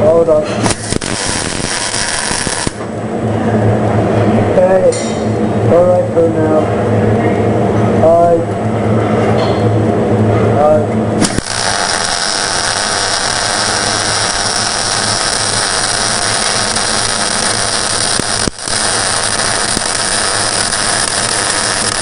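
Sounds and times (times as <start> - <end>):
welding arc hissing and crackling: 0.6 - 2.9, 11.2 - 22.0.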